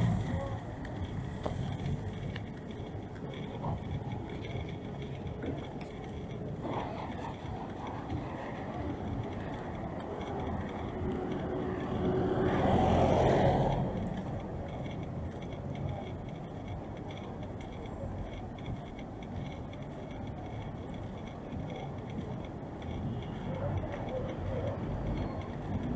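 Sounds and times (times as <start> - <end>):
vehicle passing close by: 0.0 - 0.6, 11.2 - 14.2
street traffic noise: 0.0 - 25.9.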